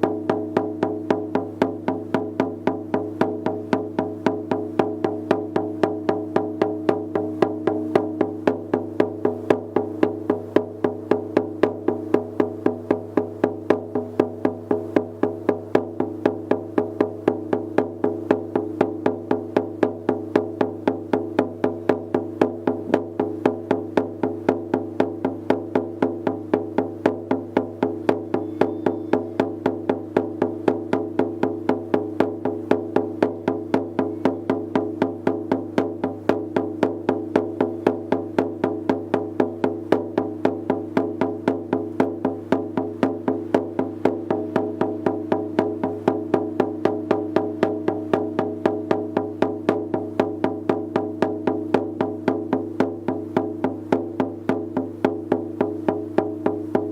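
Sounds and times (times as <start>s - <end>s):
frame drum beats: 0.0s - 56.9s.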